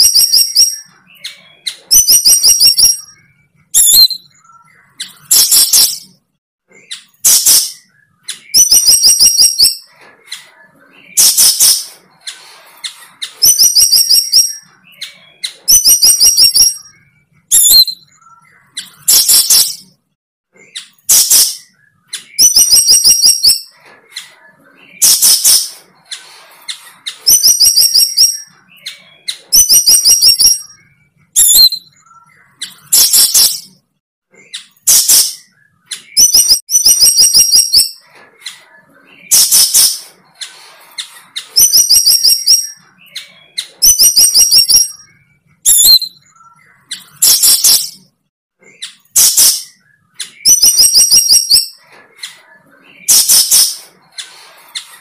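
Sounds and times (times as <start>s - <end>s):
harsh hissing bird calls: 39.4s - 41.6s, 53.5s - 55.0s.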